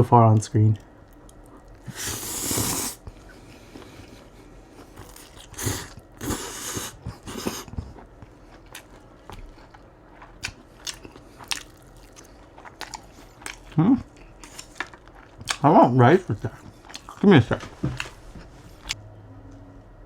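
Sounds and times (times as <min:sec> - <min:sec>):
crunching chews: 0:04.7 - 0:15.7.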